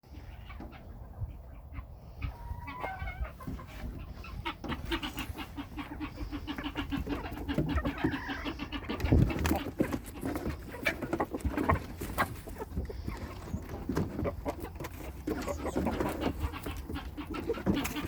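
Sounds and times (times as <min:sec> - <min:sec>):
chickens clucking: 0:00.1 - 0:18.0.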